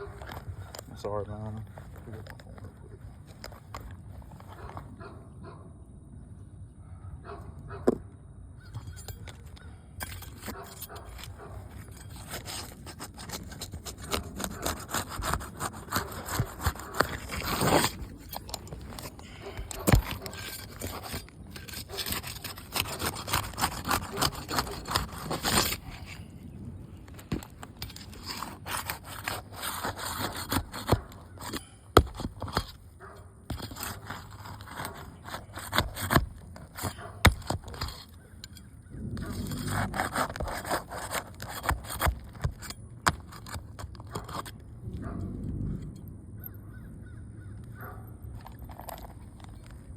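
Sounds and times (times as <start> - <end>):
shingles cracking and tearing: 9.0 - 44.7
roof shingles scraping: 10.0 - 44.6.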